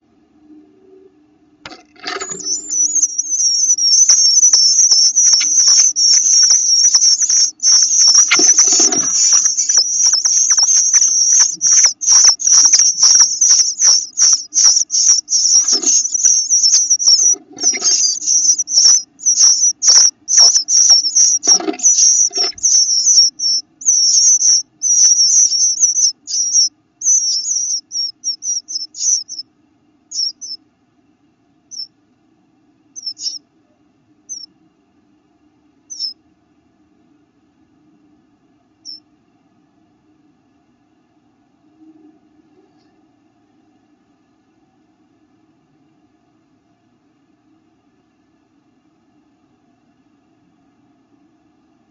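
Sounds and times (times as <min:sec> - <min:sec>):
faint low hum: 0:00.0 - 0:51.9
nestlings peeping: 0:01.7 - 0:30.8, 0:31.6 - 0:32.0, 0:32.9 - 0:33.5, 0:34.2 - 0:34.6, 0:35.8 - 0:36.3, 0:38.8 - 0:39.1.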